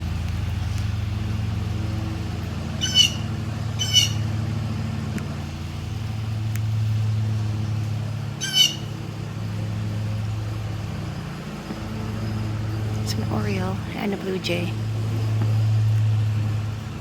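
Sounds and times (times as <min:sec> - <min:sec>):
low steady hum: 0:00.0 - 0:17.0
blue jay harsh calls: 0:02.6 - 0:04.4, 0:08.2 - 0:09.2.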